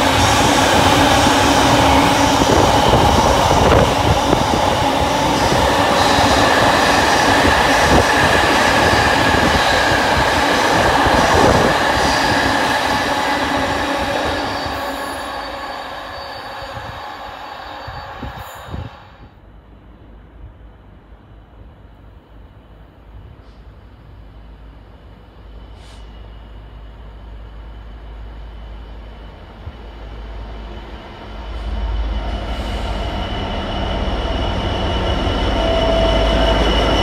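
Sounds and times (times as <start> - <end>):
steady high tone: 0.0 - 19.3
train wheels rumbling on rails: 0.0 - 19.3, 22.2 - 37.0.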